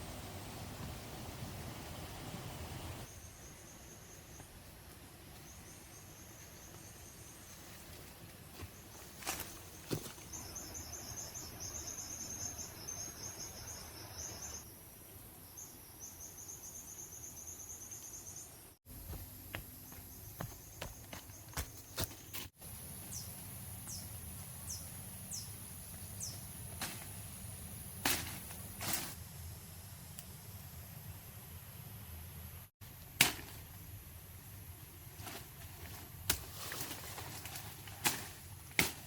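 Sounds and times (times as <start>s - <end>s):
faint outdoor hiss: 0.0s - 39.0s
insects trilling: 9.3s - 14.8s.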